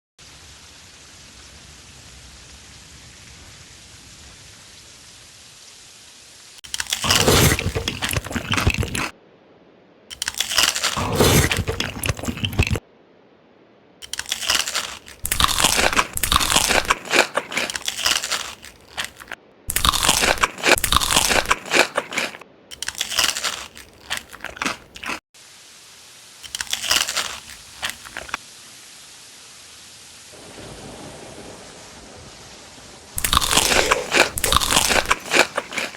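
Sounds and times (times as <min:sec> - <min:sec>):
crunchy biting and chewing: 0:06.6 - 0:09.1, 0:10.1 - 0:12.8, 0:14.0 - 0:25.2, 0:26.4 - 0:28.4, 0:33.2 - 0:35.9
steady hiss: 0:25.4 - 0:35.9.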